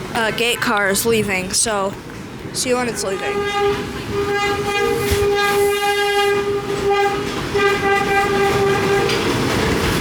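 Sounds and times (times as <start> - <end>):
subway train horn blasts: 2.9 - 9.4.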